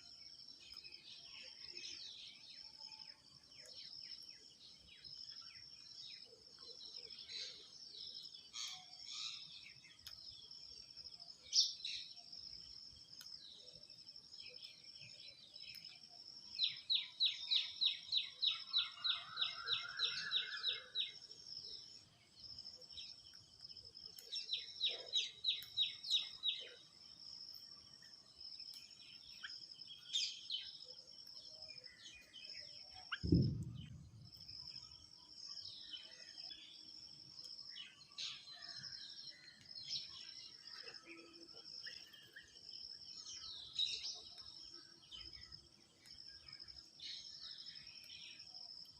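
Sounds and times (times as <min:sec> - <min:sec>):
bird calls: 0:16.6 - 0:22.1, 0:22.8 - 0:36.7.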